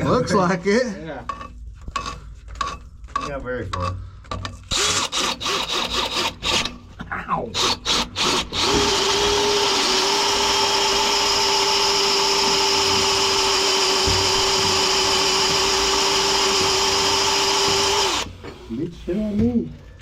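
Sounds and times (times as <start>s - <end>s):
power drill boring through pipe: 4.7s - 6.8s, 7.6s - 18.8s.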